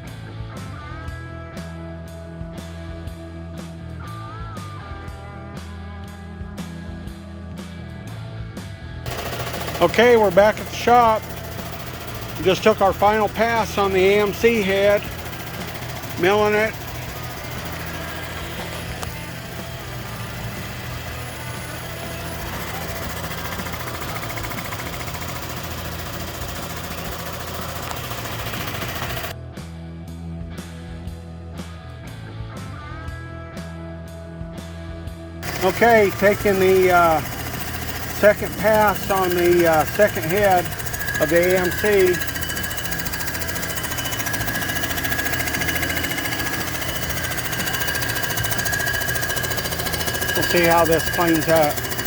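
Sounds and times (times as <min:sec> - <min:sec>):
machine humming with mechanical ticking: 0:09.1 - 0:29.4, 0:35.4 - 0:52.0.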